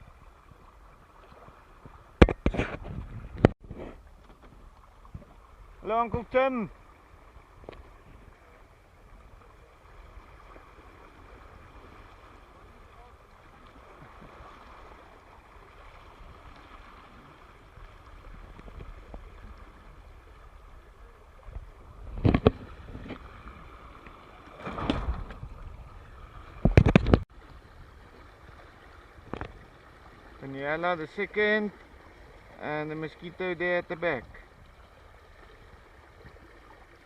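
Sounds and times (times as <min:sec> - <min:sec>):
wind on microphone: 0:00.0 - 0:06.3, 0:13.6 - 0:28.6
water rushing along hulls: 0:00.0 - 0:37.0.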